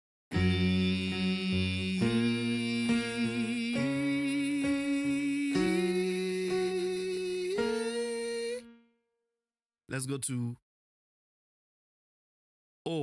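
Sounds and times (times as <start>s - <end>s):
instrumental accompaniment: 0.3s - 8.8s
person singing sustained notes: 0.4s - 8.7s.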